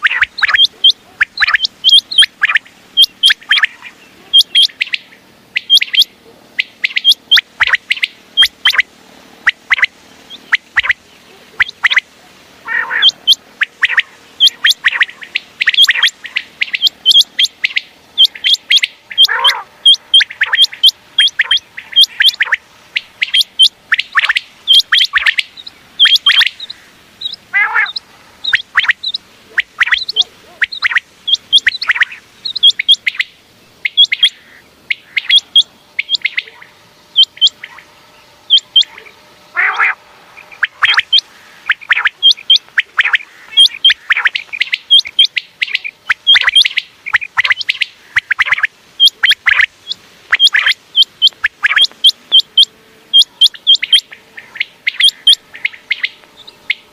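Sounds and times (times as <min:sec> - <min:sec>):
quail whistled calls: 0:00.0 - 0:37.9, 0:38.5 - 0:56.9
lower falling quail calls: 0:00.0 - 0:56.9.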